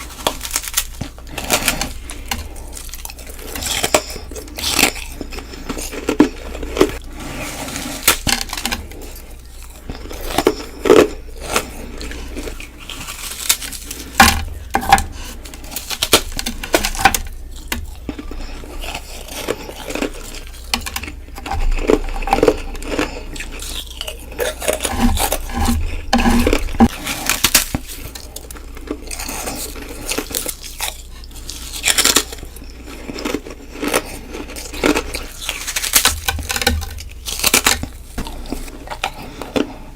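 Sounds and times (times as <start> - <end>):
grinding chews: 0.0 - 39.9
biting ice cracks and crunches: 26.4 - 39.7.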